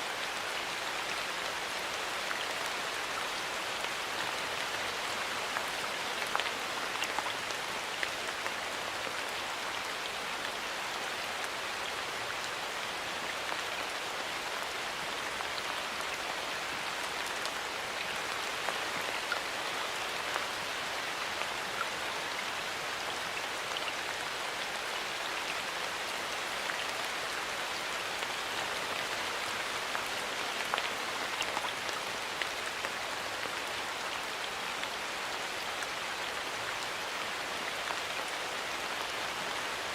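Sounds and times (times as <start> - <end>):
raindrops ticking on leaves: 0.0 - 39.9
steady rain hiss: 0.0 - 39.9.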